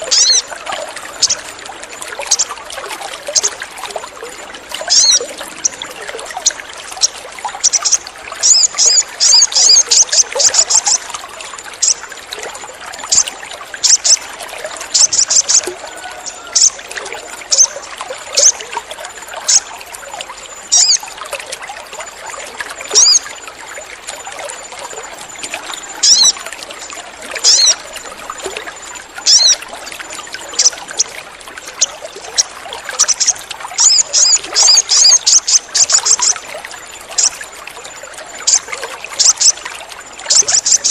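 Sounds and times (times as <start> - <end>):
trickle of running water: 0.0 - 40.9
bird chirping: 25.7 - 26.4, 27.4 - 27.8, 29.2 - 29.6.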